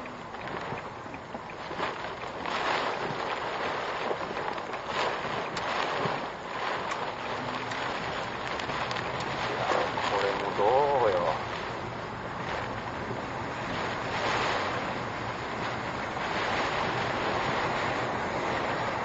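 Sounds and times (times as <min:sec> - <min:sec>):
faint ticks: 0:00.0 - 0:03.7
wind and rain buffeting a car: 0:00.0 - 0:19.0.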